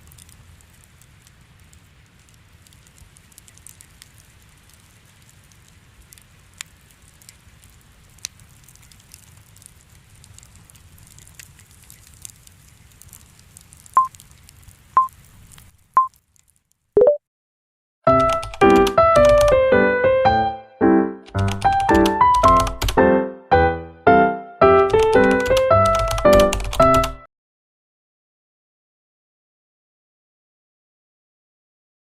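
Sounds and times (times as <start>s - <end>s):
fireplace crackling: 0.0s - 16.9s, 18.2s - 27.2s
low rumble of fire: 0.0s - 16.9s
short beeps: 17.0s - 17.2s.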